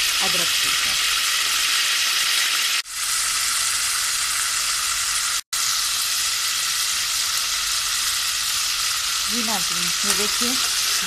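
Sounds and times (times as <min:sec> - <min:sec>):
garlic and ginger sizzling: 0:00.0 - 0:11.0.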